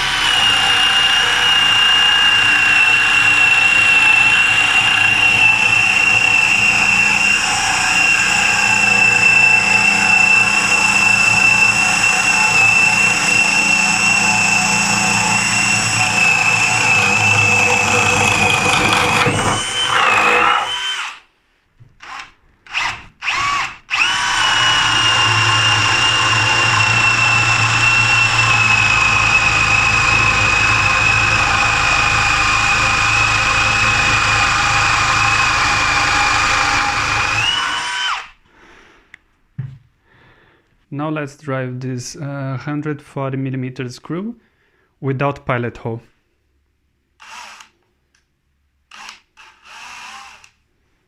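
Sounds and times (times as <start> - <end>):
cordless drill whining under load: 0.0 - 21.2, 22.0 - 38.4, 47.2 - 47.8, 48.9 - 50.6.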